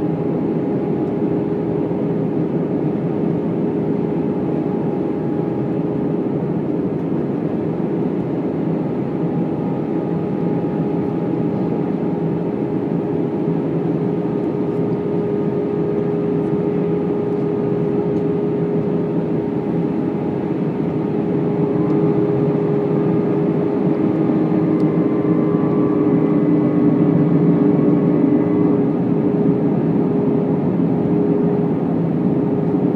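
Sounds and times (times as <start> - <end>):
jet engine drone in cabin: 0.0 - 32.9.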